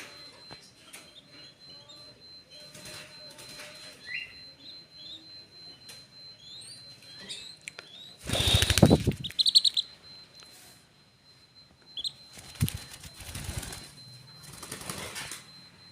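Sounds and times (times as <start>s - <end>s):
high peeps: 0.0s - 15.9s
high rising chirps: 6.2s - 10.2s
pigeon wings flapping: 8.2s - 9.4s, 12.4s - 15.4s.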